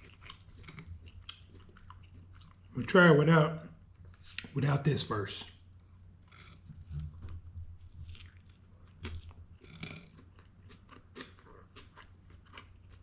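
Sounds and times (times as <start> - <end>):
person chewing crunchy food: 0.0 - 2.8, 5.8 - 13.0
low steady hum: 0.0 - 13.0.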